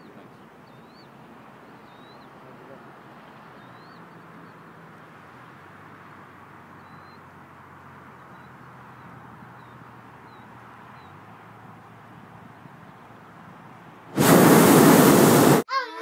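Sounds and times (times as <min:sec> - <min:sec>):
background hiss: 0:14.1 - 0:15.6.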